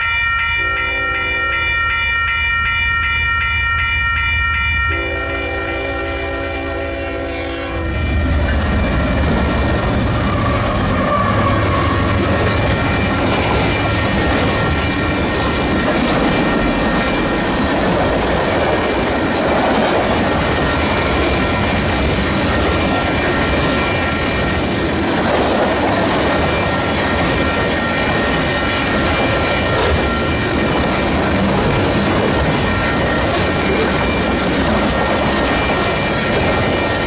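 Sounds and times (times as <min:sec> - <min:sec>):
freight train rumbling: 0:00.0 - 0:37.0
high-pitched wheel squeal: 0:10.1 - 0:12.7.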